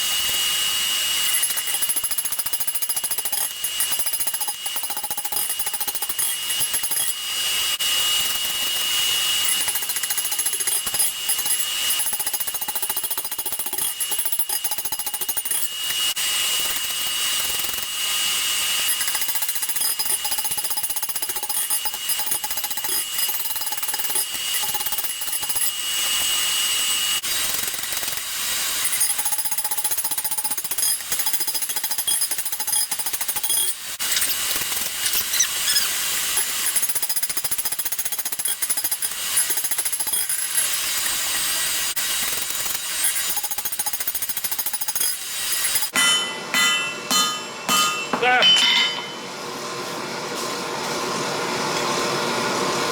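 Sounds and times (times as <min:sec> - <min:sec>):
hammering on hot steel: 0:43.4 - 0:49.3.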